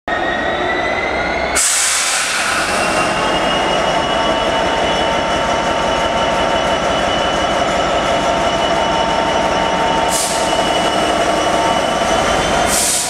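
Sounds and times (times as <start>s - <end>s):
diesel locomotive and train moving: 0.1s - 13.0s
high-pitched wheel squeal: 0.1s - 13.0s.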